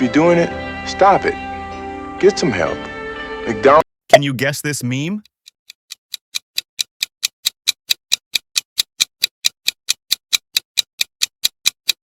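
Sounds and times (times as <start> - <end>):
countdown timer ticking: 4.1 - 12.0.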